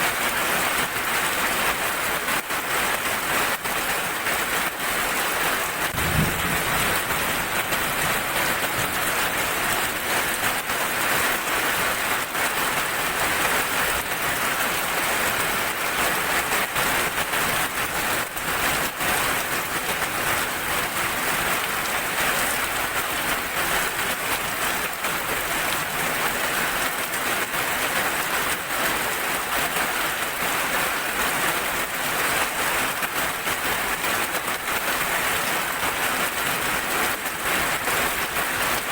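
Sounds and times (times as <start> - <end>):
rain pattering: 0.0 - 38.9
low thump: 6.0 - 7.3.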